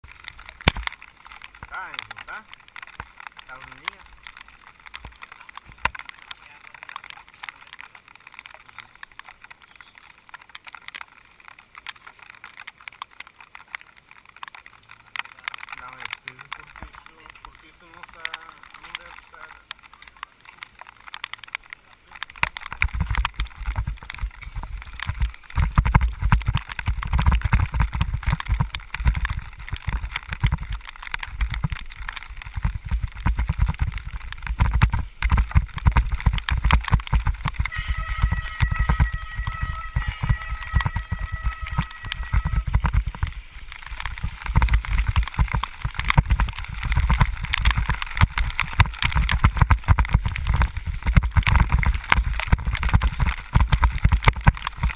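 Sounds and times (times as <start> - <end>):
wet crackle of rain: 0.0 - 54.9
wind buffeting microphone: 22.7 - 54.9
steady high squeal: 37.5 - 43.1.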